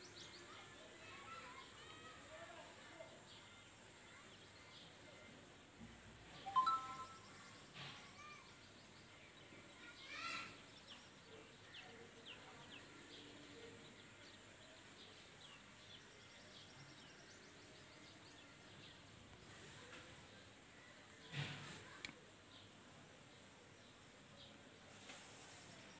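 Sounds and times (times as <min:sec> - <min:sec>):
short high bird chirps: 0:06.4 - 0:07.5.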